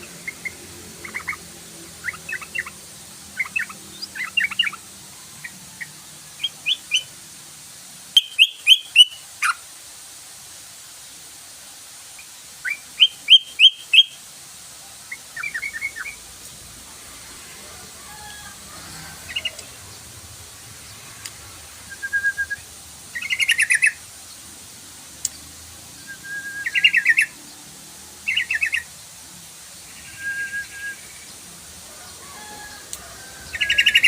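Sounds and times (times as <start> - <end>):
bulbul singing: 0.0 - 7.1, 8.1 - 9.2, 12.6 - 14.2, 21.9 - 24.0, 25.2 - 27.4, 28.3 - 28.9.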